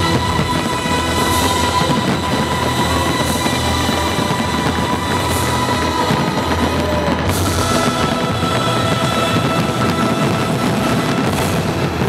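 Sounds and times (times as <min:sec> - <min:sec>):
fireworks barrage rumbling: 0:00.0 - 0:12.0
fireworks hissing: 0:00.0 - 0:12.0
loud music over sound system: 0:00.0 - 0:12.0.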